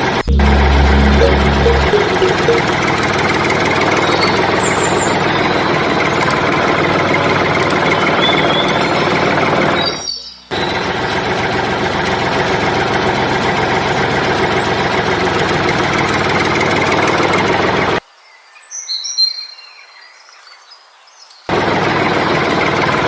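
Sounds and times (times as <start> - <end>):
bird chirping: 8.2 - 10.6.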